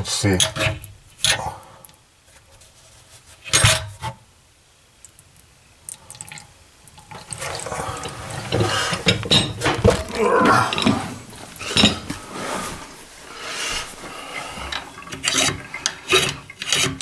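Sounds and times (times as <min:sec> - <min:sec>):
water running into sink: 0:06.0 - 0:12.3, 0:13.9 - 0:17.0.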